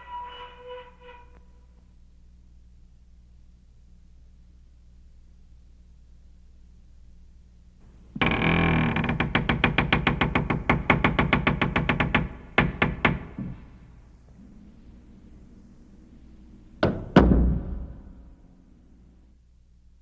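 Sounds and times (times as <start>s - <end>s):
heavy knocks: 9.0s - 14.0s, 16.8s - 18.4s
rapid knocking: 9.1s - 13.8s.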